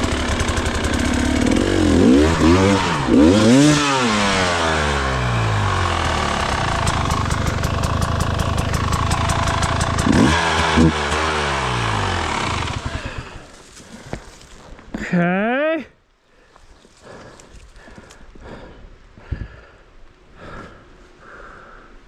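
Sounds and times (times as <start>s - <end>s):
dirt bike engine revving: 0.0s - 13.5s
rapid clicks: 6.7s - 10.4s.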